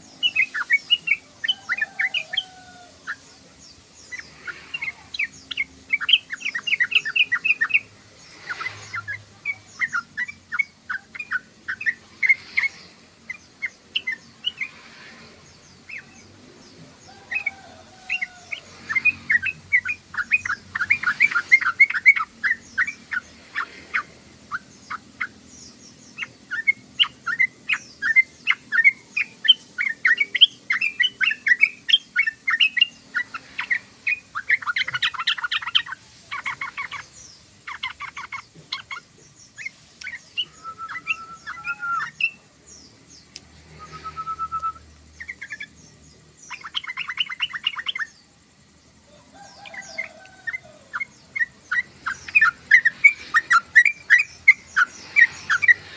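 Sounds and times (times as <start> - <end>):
bulbul chirping and trilling: 17.3 - 48.2, 49.4 - 55.9.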